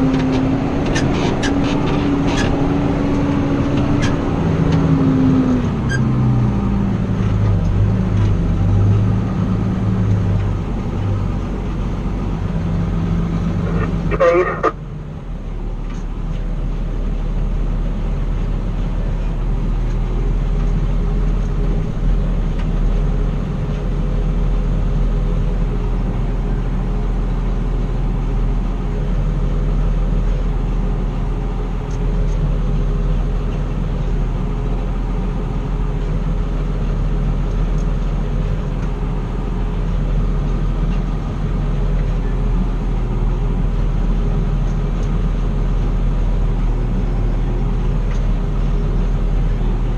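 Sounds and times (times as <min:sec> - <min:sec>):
harvest machinery engine droning: 0:00.0 - 0:49.9.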